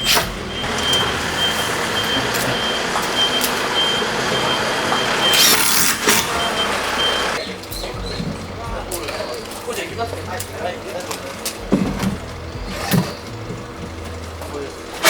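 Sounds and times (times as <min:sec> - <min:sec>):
reversing alarm beeping: 0:00.0 - 0:07.4.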